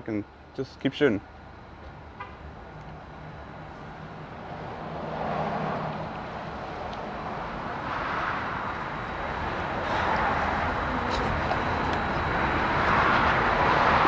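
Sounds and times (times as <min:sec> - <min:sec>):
vehicle noise: 0:00.0 - 0:14.0.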